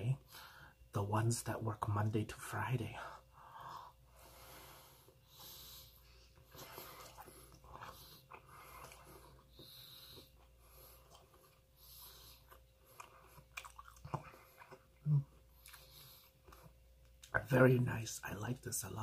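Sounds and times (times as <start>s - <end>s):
faint chewing: 5.0s - 17.4s.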